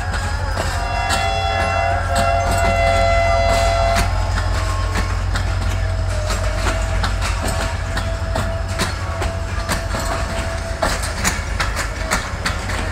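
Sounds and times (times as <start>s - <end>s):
thin steady whine: 0.0s - 12.9s
train rumbling past: 0.0s - 12.9s
wheels clacking over rail joints: 0.0s - 12.9s.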